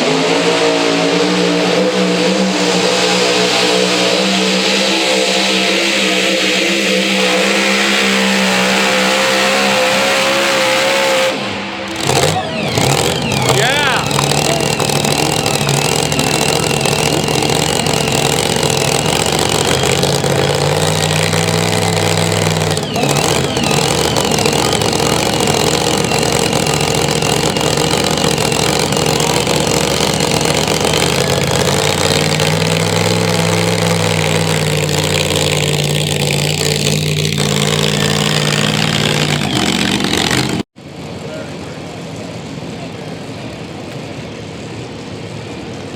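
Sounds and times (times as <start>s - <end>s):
engine running hard under load: 0.0s - 45.9s
high wavering whine: 11.4s - 33.1s.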